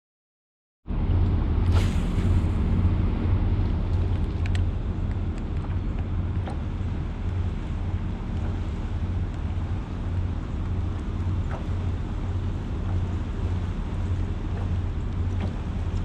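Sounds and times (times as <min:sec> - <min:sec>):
boat motor running: 0:00.9 - 0:16.0.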